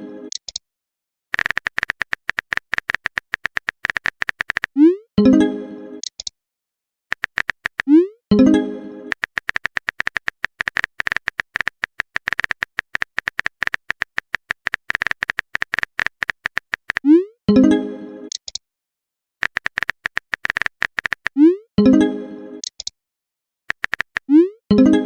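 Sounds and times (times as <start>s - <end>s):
rapid typing clicks: 1.3s - 4.7s, 7.1s - 8.0s, 9.1s - 17.1s, 19.4s - 21.4s, 23.7s - 24.3s.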